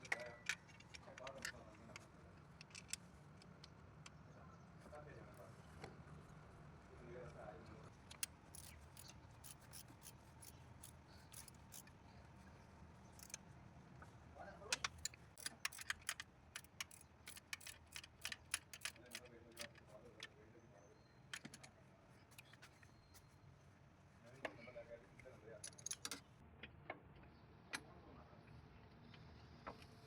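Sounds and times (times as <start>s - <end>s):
metallic clicks and clinks: 8.1s - 11.9s, 13.2s - 13.4s, 14.8s - 20.3s, 25.6s - 26.2s.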